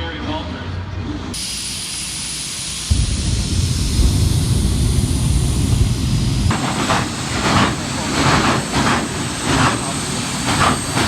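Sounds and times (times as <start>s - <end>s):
turbine engine whining: 1.4s - 11.0s
loud low rumble: 2.9s - 8.2s.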